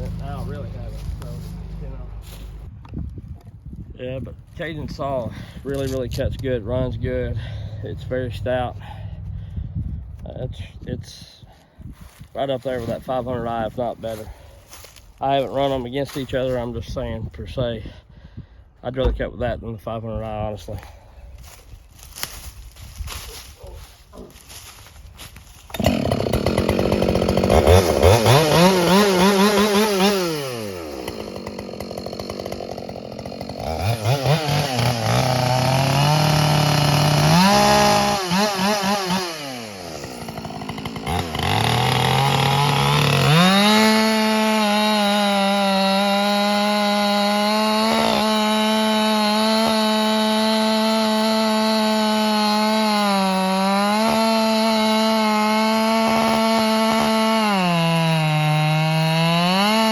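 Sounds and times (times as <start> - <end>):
chainsaw revving: 0.0 - 2.4, 25.6 - 59.9.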